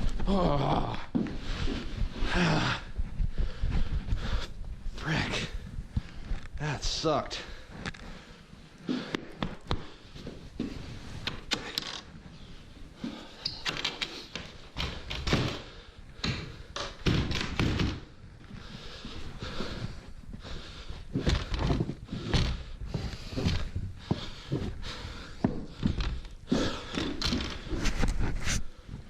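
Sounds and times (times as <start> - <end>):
thumps and knocks: 16.2 - 18.1.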